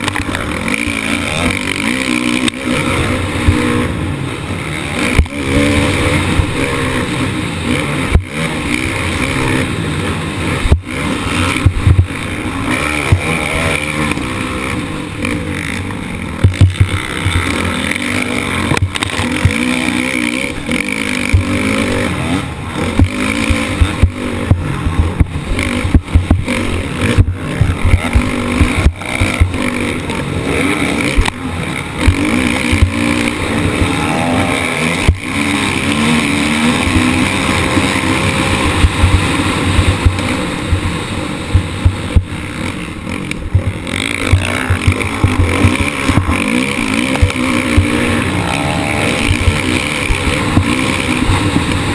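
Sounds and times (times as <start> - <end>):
motocross engine revving: 0.0 - 51.9
sharp knocks and thuds: 11.6 - 12.1, 16.4 - 17.6, 22.9 - 29.7.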